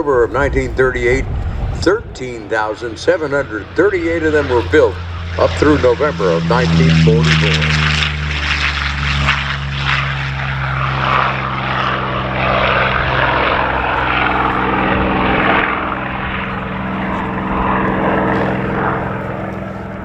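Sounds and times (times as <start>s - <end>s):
propeller plane engine drone: 0.0s - 20.0s.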